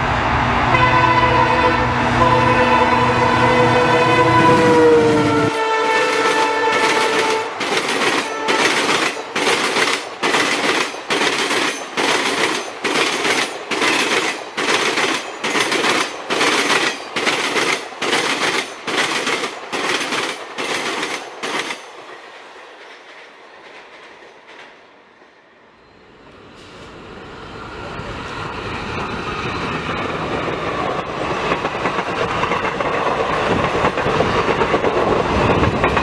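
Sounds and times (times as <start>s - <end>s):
diesel train horn blast: 0.0s - 8.9s
train rumble: 0.0s - 36.0s
train wheels clattering: 5.5s - 24.8s, 29.3s - 36.0s.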